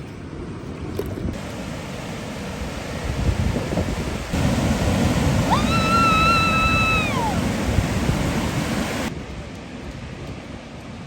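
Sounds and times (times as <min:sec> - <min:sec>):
wind on microphone: 0:00.6 - 0:10.5
ocean surf: 0:01.4 - 0:09.2.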